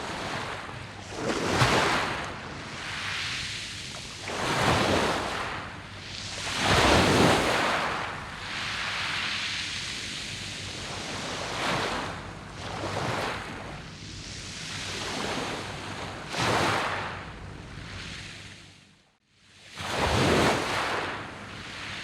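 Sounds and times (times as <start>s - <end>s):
waves breaking on pebble beach: 0.0s - 9.4s.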